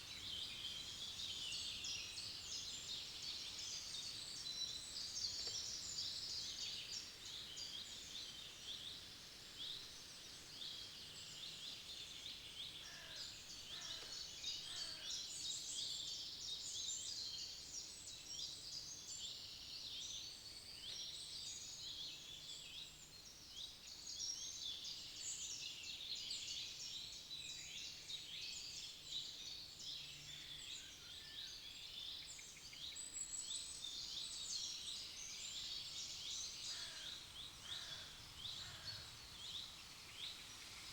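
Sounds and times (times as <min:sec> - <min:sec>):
songbirds chirping and trilling: 0:26.2 - 0:40.9.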